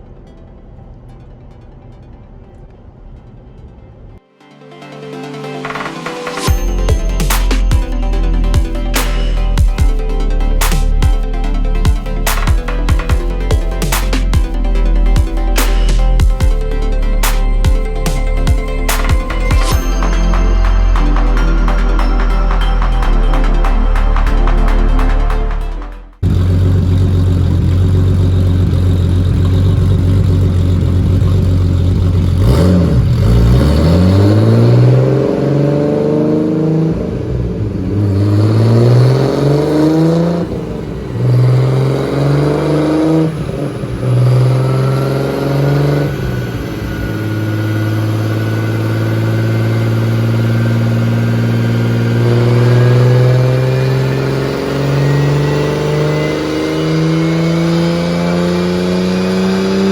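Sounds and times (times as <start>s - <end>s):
car engine revving on dyno: 26.2s - 59.9s.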